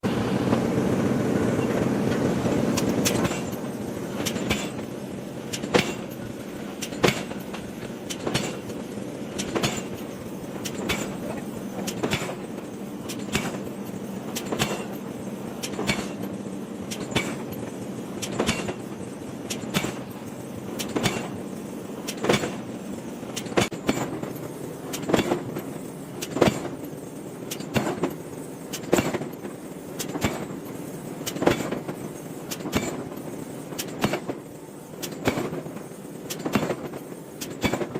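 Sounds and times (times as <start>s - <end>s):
loud steady rumble: 0.0s - 23.9s.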